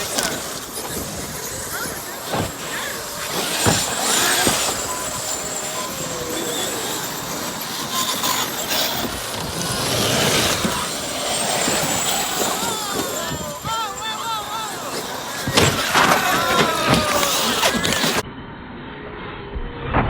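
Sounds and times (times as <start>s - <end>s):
electric motors whining: 0.0s - 18.2s
tyres on dirt: 0.0s - 18.2s.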